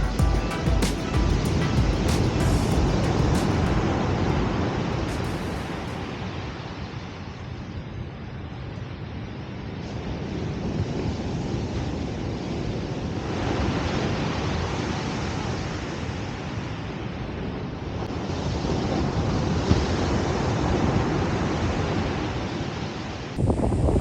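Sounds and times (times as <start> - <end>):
ocean surf: 0.0 - 7.4.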